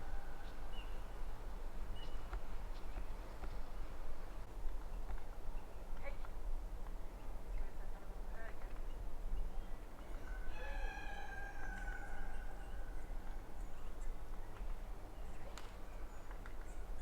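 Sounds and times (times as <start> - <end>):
rooster crowing: 10.2 - 12.8.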